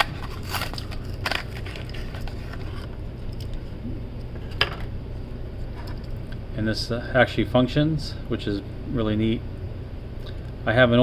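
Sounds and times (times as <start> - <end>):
plastic packaging crackling: 0.0 - 2.9
steady low hum: 0.0 - 11.0.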